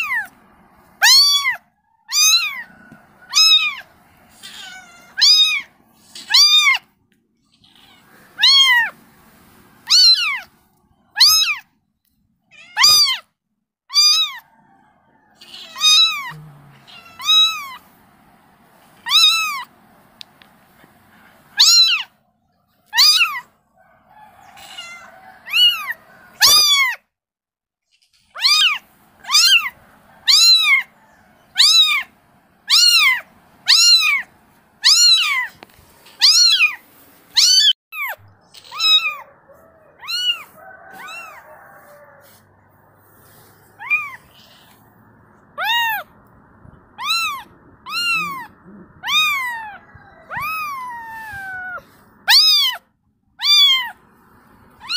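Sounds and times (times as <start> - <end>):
kitten meowing: 0.0 - 0.3, 1.0 - 2.7, 3.3 - 6.9, 7.5 - 9.0, 9.8 - 10.5, 11.1 - 11.7, 12.5 - 13.3, 13.9 - 14.4, 15.4 - 17.8, 19.0 - 19.7, 21.5 - 22.1, 22.9 - 23.4, 24.5 - 27.0, 28.1 - 30.9, 31.6 - 32.1, 32.7 - 41.4, 43.8 - 44.8, 45.6 - 46.1, 46.9 - 52.8, 53.4 - 54.0.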